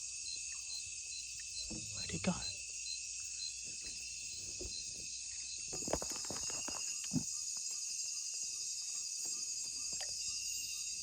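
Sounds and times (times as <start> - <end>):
insect chorus drone: 0.0 - 11.0.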